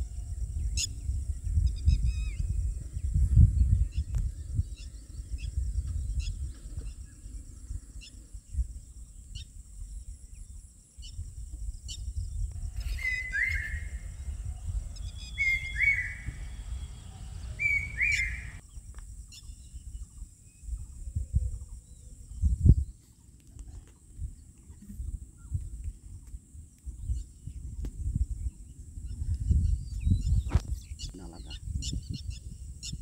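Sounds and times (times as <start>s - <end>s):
wild birds chirping: 0.0s - 11.3s, 11.9s - 25.6s
two-part bird call: 15.1s - 18.6s
low uneven rumble: 16.1s - 18.6s.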